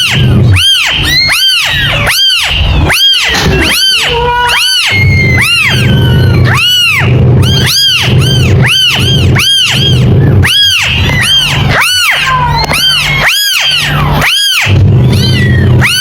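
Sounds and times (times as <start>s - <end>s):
kittens meowing: 0.0s - 16.0s
steady low hum: 0.0s - 16.0s.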